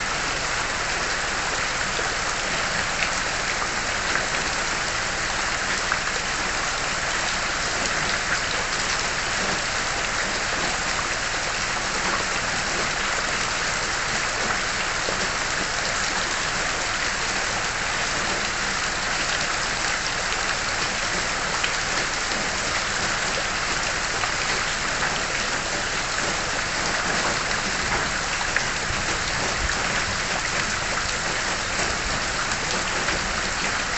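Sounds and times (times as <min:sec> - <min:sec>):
rain hissing on surfaces: 0:00.0 - 0:33.9
raindrop ticks: 0:20.8 - 0:33.9.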